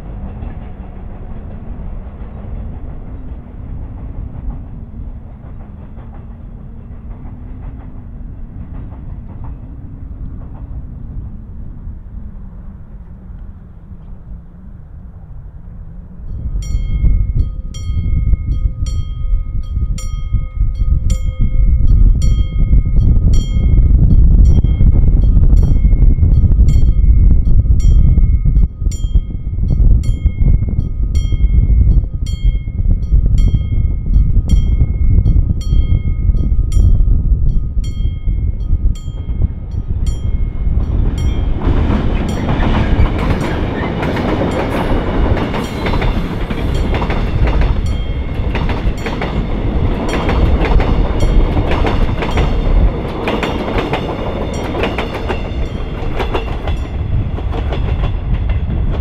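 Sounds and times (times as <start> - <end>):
train wheels clattering over rail joints: 0.0 - 11.0, 40.7 - 59.0
low rumble: 0.0 - 59.0
warning bell dinging: 16.2 - 41.6.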